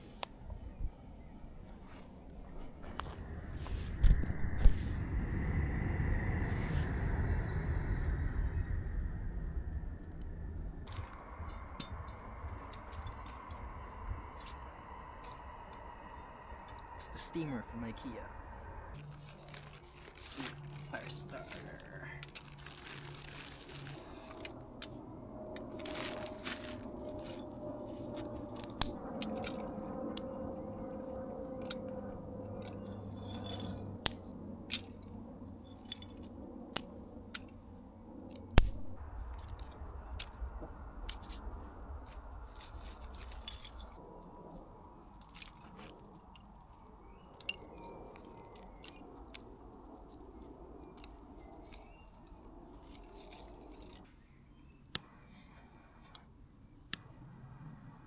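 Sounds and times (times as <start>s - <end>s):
campfire crackling and popping: 18.9s - 25.0s, 25.6s - 30.3s, 33.5s - 49.7s.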